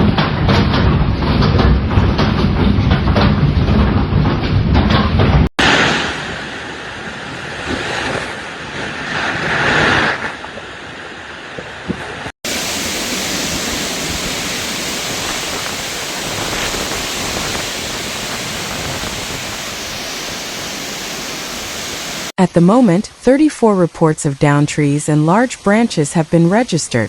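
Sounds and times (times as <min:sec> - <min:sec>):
heavy rain pouring: 0:12.4 - 0:22.4
storm wind rushing hiss: 0:12.5 - 0:22.3.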